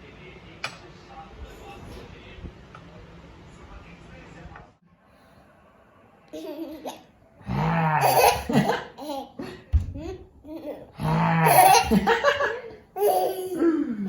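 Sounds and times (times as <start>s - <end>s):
adult laughter: 8.2s - 9.7s, 11.5s - 13.8s.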